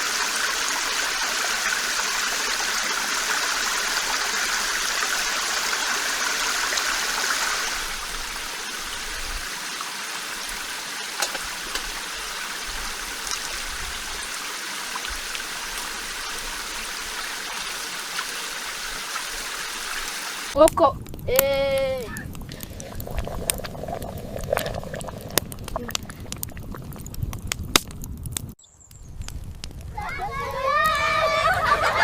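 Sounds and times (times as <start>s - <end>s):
flowing water rushing: 0.0s - 20.6s.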